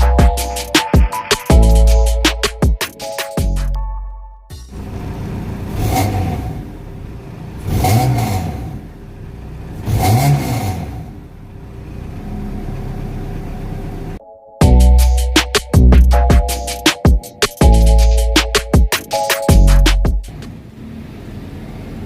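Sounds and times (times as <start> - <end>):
car engine idling and revving: 4.5 - 14.2, 19.7 - 22.0.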